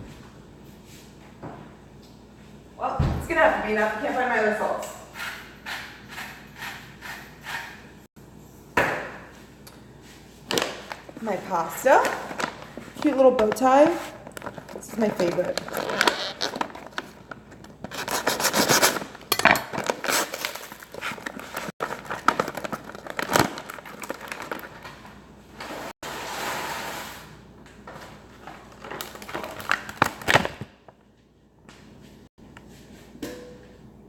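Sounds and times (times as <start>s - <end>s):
rubbing and scraping in a pot: 11.1s - 19.2s, 19.9s - 23.2s, 24.4s - 27.4s.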